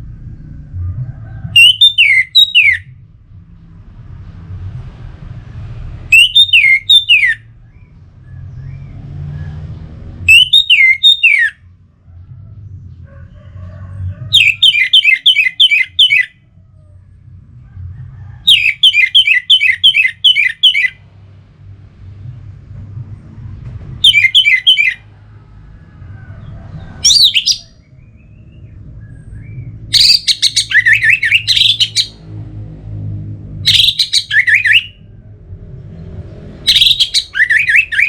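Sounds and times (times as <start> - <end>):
low rumble: 0.0 - 1.7, 2.8 - 10.3, 11.6 - 14.6, 16.3 - 18.5, 20.9 - 38.0
thrush singing: 6.1 - 7.9, 10.2 - 11.6, 14.3 - 16.4, 18.4 - 21.0, 24.0 - 26.0, 27.0 - 32.3, 33.6 - 35.1, 36.6 - 38.0.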